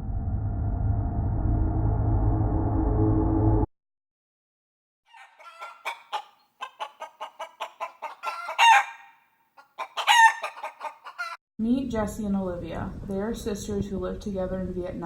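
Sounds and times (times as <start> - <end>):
chickens clucking: 5.1 - 11.4
drawn-out chicken calls: 5.1 - 11.4.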